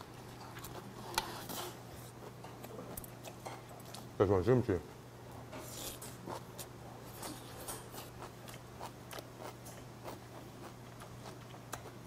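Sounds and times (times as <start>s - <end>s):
chewing with mouth closed: 0.1s - 1.4s, 5.7s - 12.0s.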